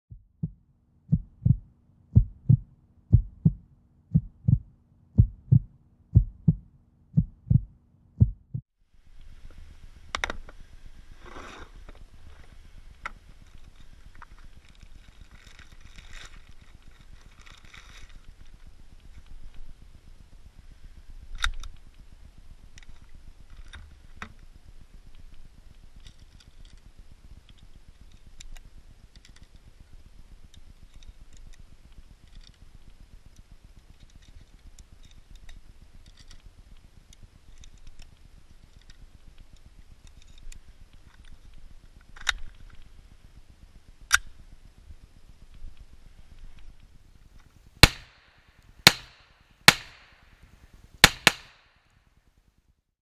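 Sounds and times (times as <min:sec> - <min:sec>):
pistol clack: 0:47.8 - 0:48.2, 0:48.9 - 0:50.2, 0:51.0 - 0:51.7.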